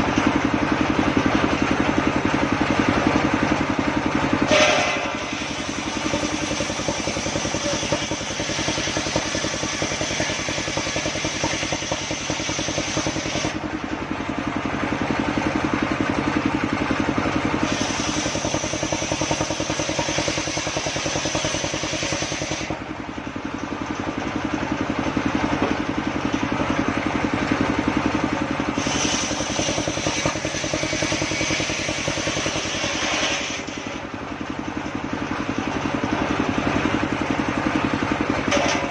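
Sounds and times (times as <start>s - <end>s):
engine running: 0.0s - 38.9s
circular saw cutting wood: 4.3s - 13.6s, 17.5s - 22.8s, 28.5s - 34.2s.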